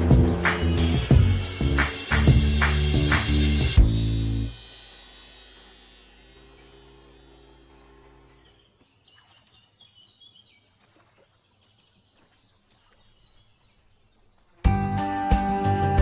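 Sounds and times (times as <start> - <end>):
background music: 0.0 - 4.6, 14.7 - 16.0
loud guitar music: 0.0 - 4.7, 14.7 - 16.0
small birds chirping: 6.6 - 15.3.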